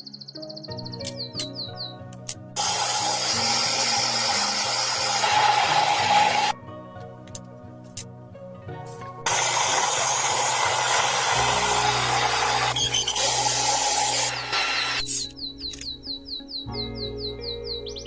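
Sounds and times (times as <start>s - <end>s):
soft background music: 0.0s - 18.0s
power tool running on metal: 2.6s - 6.6s, 9.3s - 15.1s.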